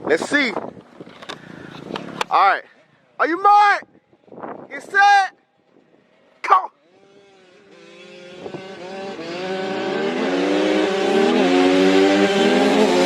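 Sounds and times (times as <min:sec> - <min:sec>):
dirt bikes accelerating: 0:06.0 - 0:13.0.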